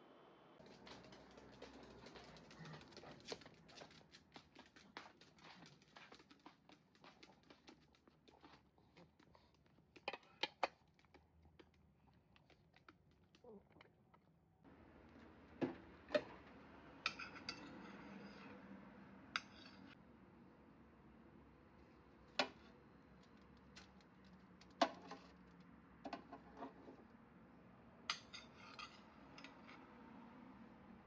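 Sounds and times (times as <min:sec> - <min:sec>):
dishes and cutlery clinking: 0:17.0 - 0:18.5, 0:19.4 - 0:20.0, 0:28.1 - 0:29.8.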